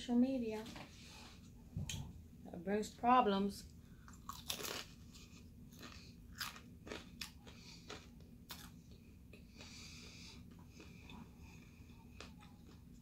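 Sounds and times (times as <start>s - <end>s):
crunchy bite and chewing: 4.1s - 9.8s.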